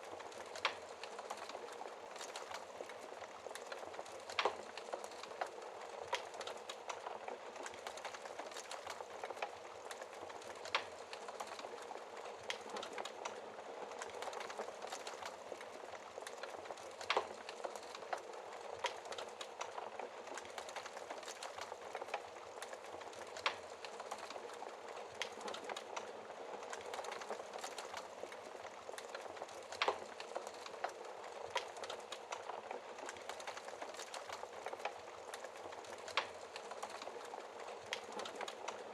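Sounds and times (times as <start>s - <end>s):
crackling logs in fireplace: 0.0s - 38.9s.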